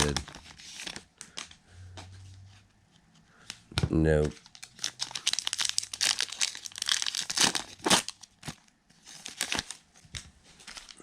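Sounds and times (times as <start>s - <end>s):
wrappers crinkling and tearing: 0.0s - 1.0s, 4.2s - 9.8s, 10.6s - 11.0s.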